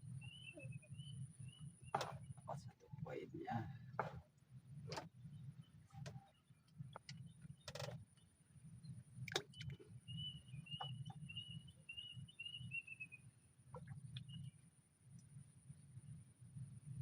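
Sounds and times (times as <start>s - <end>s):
bird chirping: 0.0s - 2.8s, 5.2s - 14.6s
scattered clicks and knocks: 7.0s - 8.0s.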